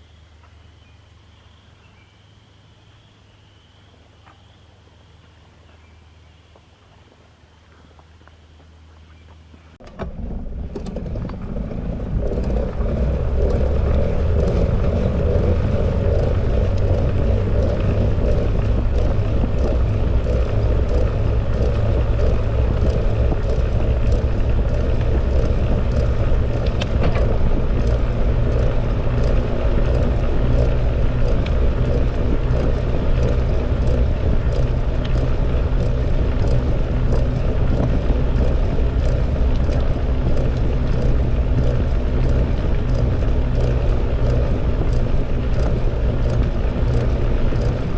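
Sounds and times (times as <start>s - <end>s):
bicycle tyre noise: 10.0s - 47.9s
wind rushing over microphone: 10.0s - 47.9s
small clicks and ticks: 10.7s - 47.9s.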